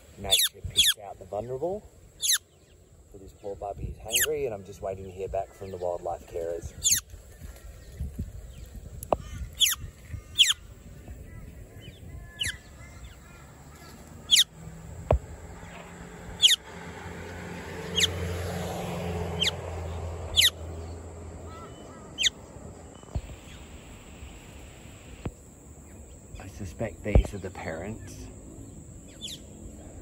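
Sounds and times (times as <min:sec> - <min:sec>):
bird sharp high calls: 0:00.2 - 0:01.1, 0:02.2 - 0:02.8, 0:04.1 - 0:04.5, 0:06.7 - 0:14.6, 0:16.4 - 0:16.7, 0:17.8 - 0:18.2, 0:19.3 - 0:24.5, 0:29.1 - 0:29.6.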